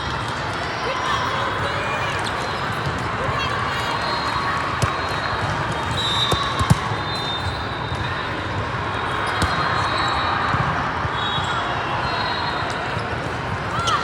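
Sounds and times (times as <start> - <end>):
many voices in hall: 0.0 - 14.0
volleyballs smacked and bouncing: 4.6 - 7.5, 9.3 - 9.8.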